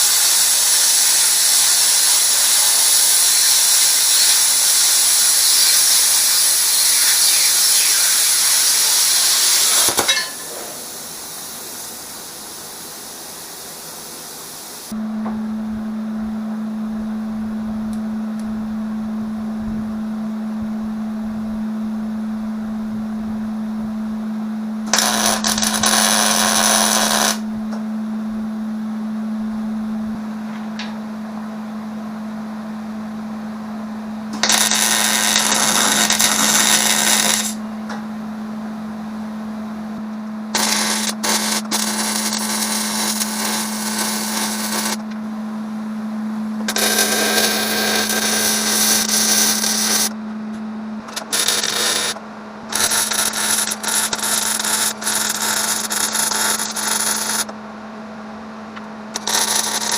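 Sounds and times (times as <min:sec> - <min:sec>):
harsh crackling bursts: 0:00.0 - 0:14.9, 0:24.9 - 0:27.4, 0:34.4 - 0:37.6, 0:40.5 - 0:45.0, 0:46.7 - 0:50.2, 0:51.1 - 0:57.5, 0:59.1 - 0:59.9
steady low hum: 0:01.6 - 0:59.9.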